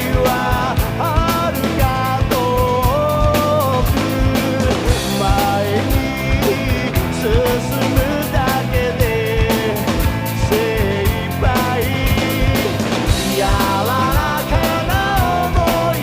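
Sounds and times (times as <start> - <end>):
drum kit playing: 0.0 - 16.0
man singing: 0.0 - 16.0
recorded rock song: 0.0 - 16.0.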